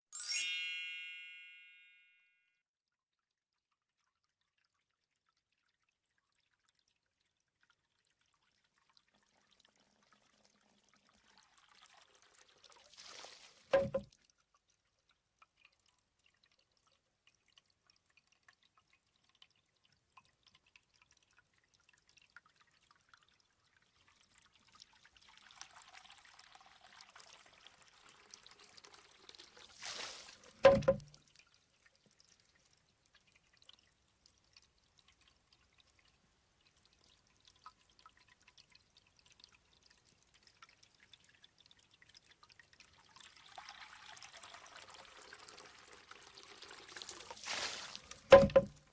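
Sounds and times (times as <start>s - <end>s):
water trickling into bamboo tube: 3.0s - 48.9s
water spilling from bamboo tube: 3.9s - 48.9s
water dripping: 10.8s - 48.9s
bamboo tube knocking on stone: 13.8s - 14.1s, 30.6s - 31.1s, 48.3s - 48.8s.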